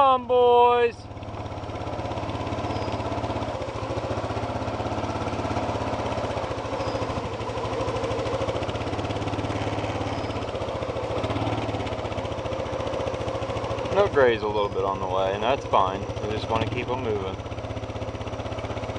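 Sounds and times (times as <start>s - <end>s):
atv engine running: 0.0s - 18.9s.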